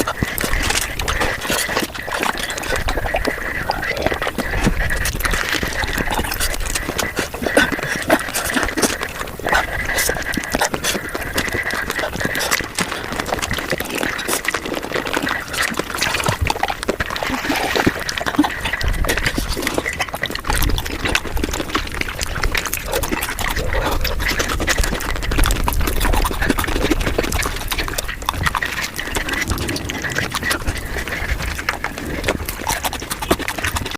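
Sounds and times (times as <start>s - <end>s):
crunching and wet mouth noises: 0.0s - 33.9s
low rumble: 24.9s - 32.8s.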